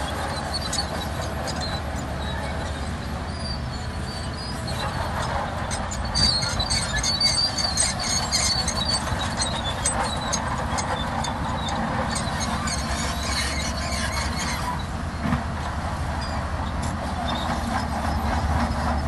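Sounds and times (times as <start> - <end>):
bulldozer diesel engine running: 0.0 - 19.0
squealing tracks: 0.0 - 19.0
steel tracks clanking: 0.0 - 19.0.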